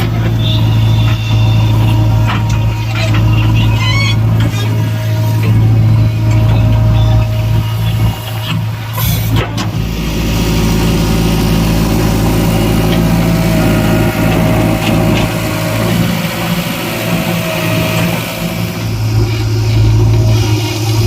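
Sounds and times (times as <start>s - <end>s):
heavy diesel engine running: 0.0s - 21.0s
thin steady whine: 9.7s - 21.0s.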